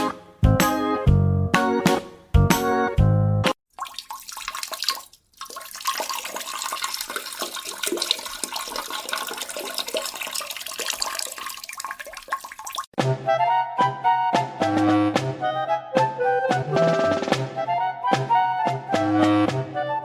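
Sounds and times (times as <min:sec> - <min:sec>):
running water with small splashes: 0:03.7 - 0:13.0.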